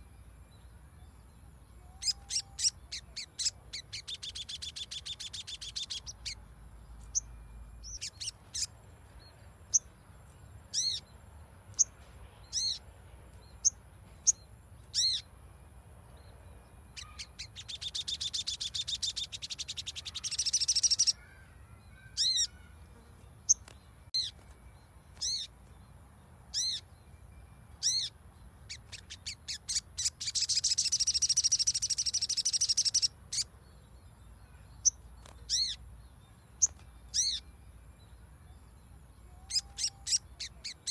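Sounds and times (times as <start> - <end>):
songbird chirping: 0.0 - 40.9
bird chattering trill: 1.9 - 6.4, 16.9 - 21.3, 28.7 - 33.5.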